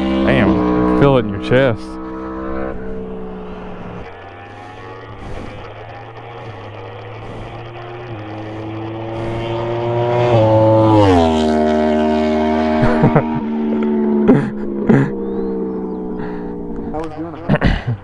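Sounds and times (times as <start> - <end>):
motorcycle passing by: 0.0 - 17.6.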